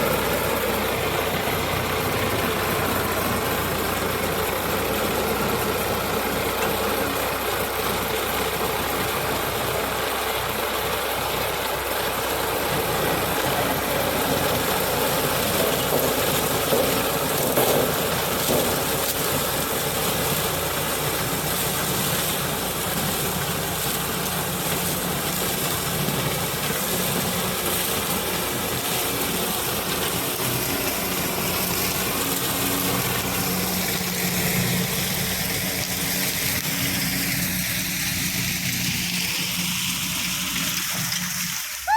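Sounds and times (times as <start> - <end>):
harvester engine running: 0.0 - 41.8
dense mechanical noise: 0.0 - 41.9.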